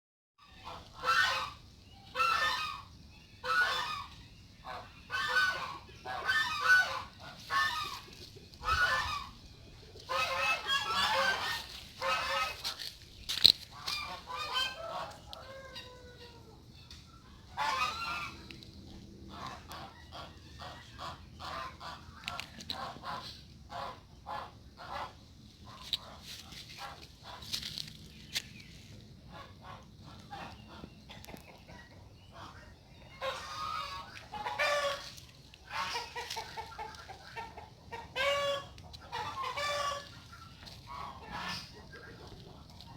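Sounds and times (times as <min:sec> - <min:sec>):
geese honking: 0:00.5 - 0:16.5, 0:17.4 - 0:27.9, 0:32.3 - 0:42.9.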